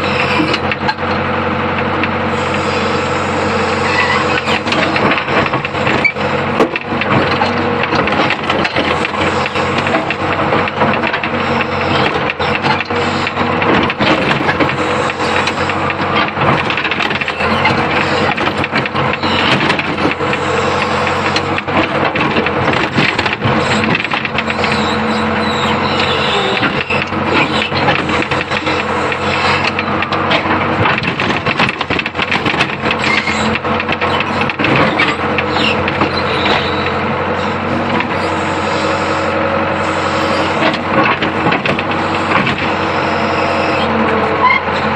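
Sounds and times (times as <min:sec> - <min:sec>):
excavator diesel engine running: 0:00.0 - 0:44.9
machine knocks and clatter: 0:04.4 - 0:25.1, 0:25.7 - 0:38.2, 0:40.5 - 0:42.9.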